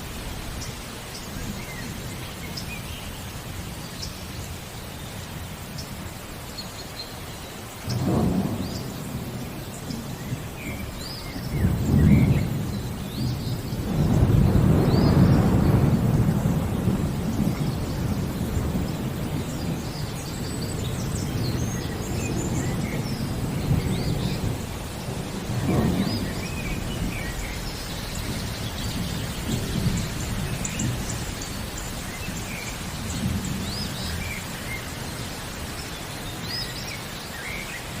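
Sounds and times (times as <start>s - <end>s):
birds chirping: 0.0s - 38.0s
steady rain: 0.0s - 38.0s
thunder rumbling: 7.9s - 34.8s.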